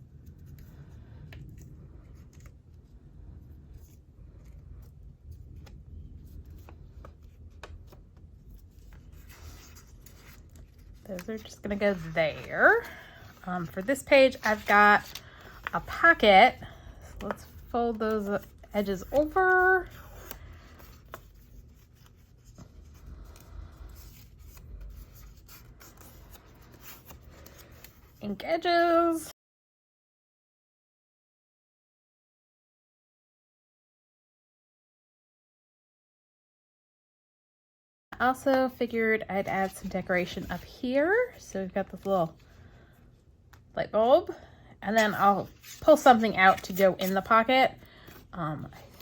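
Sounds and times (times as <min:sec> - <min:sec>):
paper rustling: 0:00.0 - 0:28.2, 0:45.0 - 0:49.0
steady low hum: 0:00.0 - 0:28.2.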